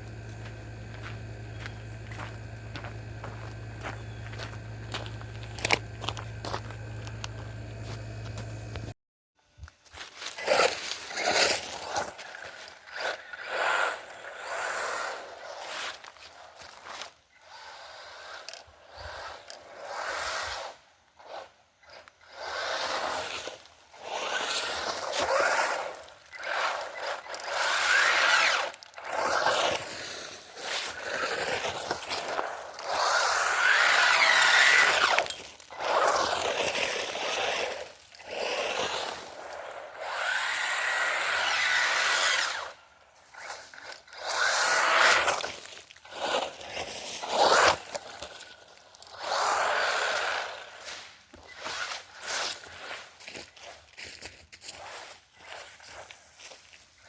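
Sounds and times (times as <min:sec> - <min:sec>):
small electric motor whining: 0:00.0 - 0:08.9, 0:10.4 - 0:53.0
rough scraping noise: 0:17.7 - 0:53.3.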